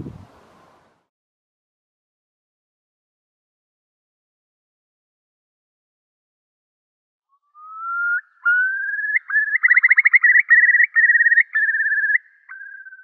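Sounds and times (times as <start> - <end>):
bird whistling trill: 7.3 - 13.0.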